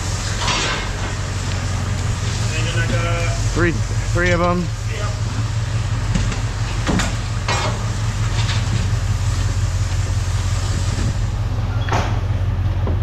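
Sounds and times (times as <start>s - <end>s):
low engine hum: 0.0s - 13.0s
scrap metal clanking: 0.3s - 1.2s, 6.2s - 9.0s.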